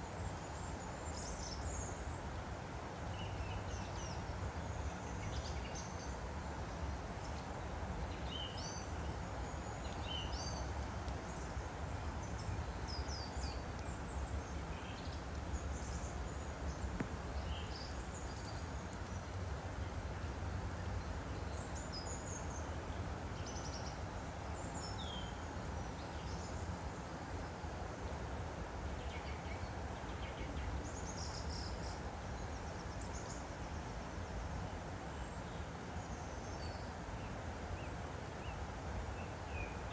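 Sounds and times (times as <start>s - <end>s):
stream flowing: 0.0s - 39.9s
small birds chirping: 8.2s - 19.9s.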